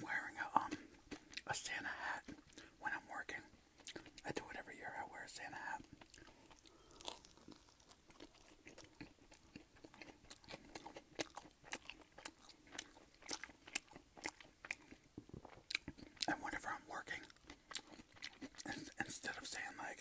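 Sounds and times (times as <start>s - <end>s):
close-miked chewing: 0.0s - 20.0s
wet mouth clicks: 0.2s - 4.4s.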